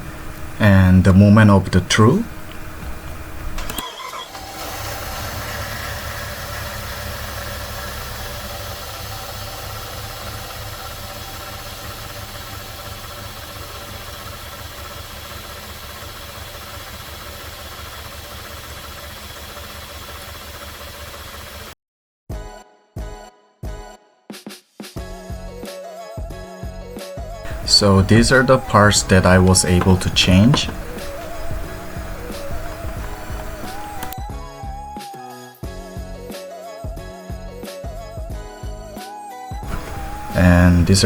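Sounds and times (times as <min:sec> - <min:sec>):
car engine starting and idling: 0:00.0 - 0:21.8, 0:27.5 - 0:34.2, 0:39.6 - 0:41.0.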